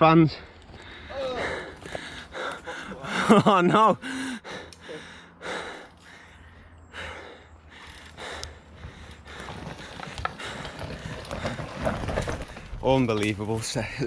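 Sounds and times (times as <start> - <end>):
person breathing hard: 0.4 - 3.3, 4.0 - 11.6
bike clicks and rattles: 0.5 - 3.5, 7.0 - 13.8.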